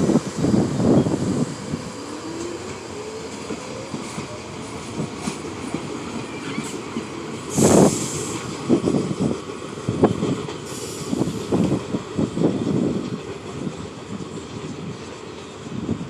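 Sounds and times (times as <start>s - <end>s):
train wheels clattering: 1.6s - 15.7s
loud hiss: 7.4s - 8.8s, 10.6s - 11.7s.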